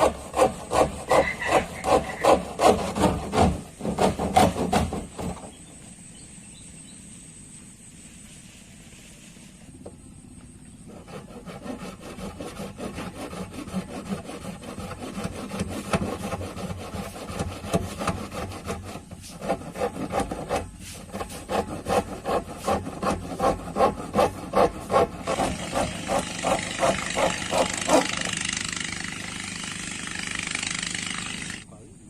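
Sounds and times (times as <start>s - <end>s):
hand saw cutting plastic: 0.0s - 5.5s, 10.9s - 29.3s.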